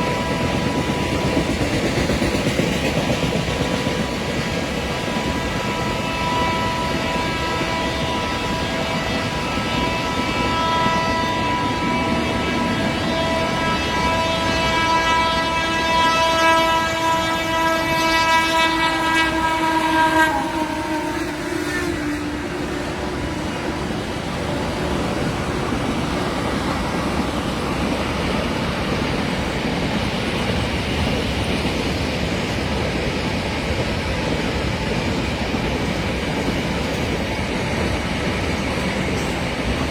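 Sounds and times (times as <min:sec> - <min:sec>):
train horn blast: 0:00.0 - 0:02.1, 0:04.9 - 0:29.4
train wheels rumbling past: 0:00.0 - 0:39.9.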